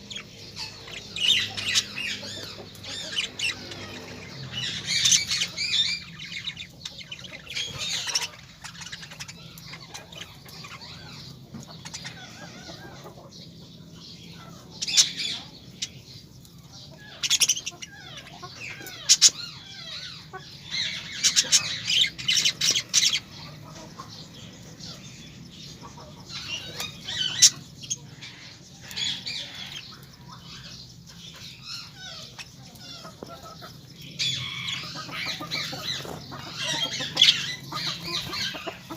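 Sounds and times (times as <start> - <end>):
birds calling: 0.0 - 38.9.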